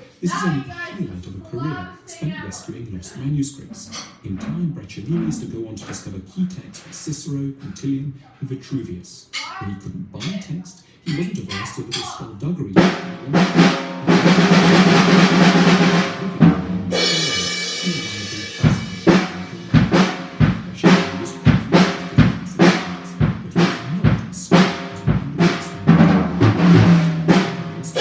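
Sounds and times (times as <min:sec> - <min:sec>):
uneven drum hits: 0:12.8 - 0:28.0
cymbal crash: 0:16.8 - 0:23.0.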